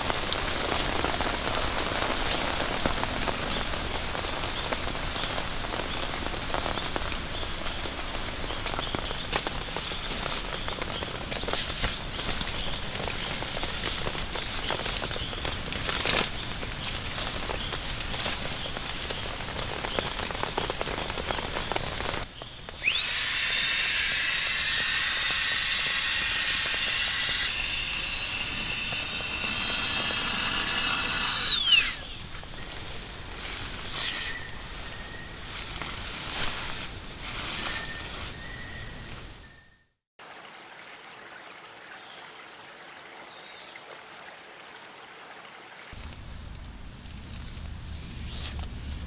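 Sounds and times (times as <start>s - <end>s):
rain pattering: 0.0s - 22.8s
electric motor whine: 22.8s - 32.4s.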